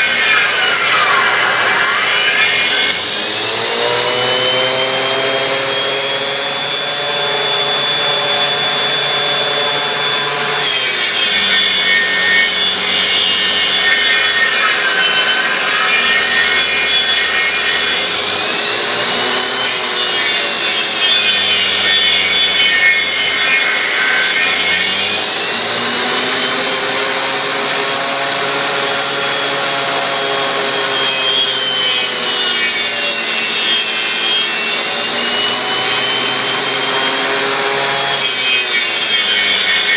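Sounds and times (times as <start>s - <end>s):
lathe cutting wood: 0.0s - 39.9s
lathe motor whine: 0.0s - 39.9s.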